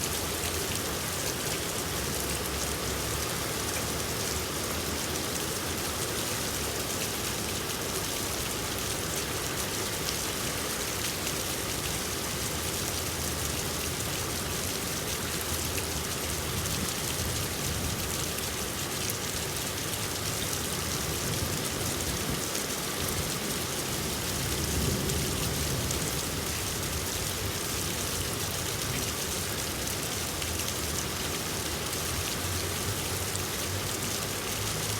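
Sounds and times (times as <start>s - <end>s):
rain pattering: 0.0s - 34.9s.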